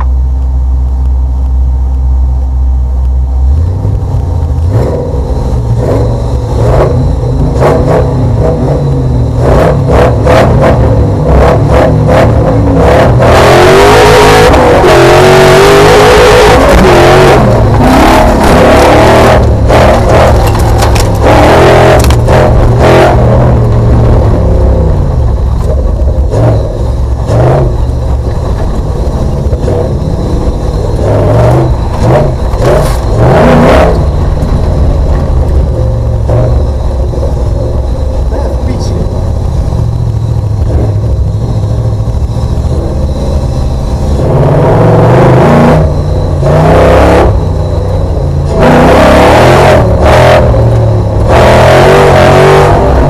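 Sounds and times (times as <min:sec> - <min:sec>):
car engine revving: 0:00.0 - 0:53.0
loud rushing noise: 0:03.6 - 0:53.0
knocks and clatter: 0:19.7 - 0:22.5.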